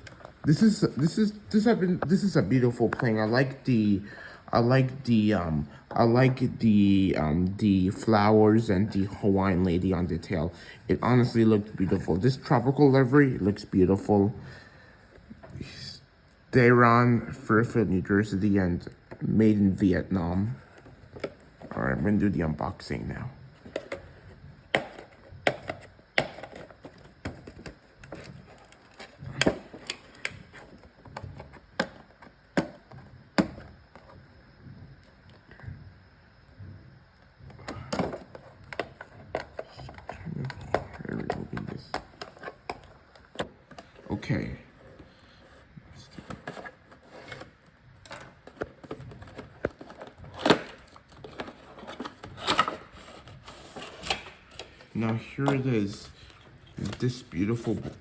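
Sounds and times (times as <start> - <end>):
packaging clicks and rustles: 46.0 - 58.0.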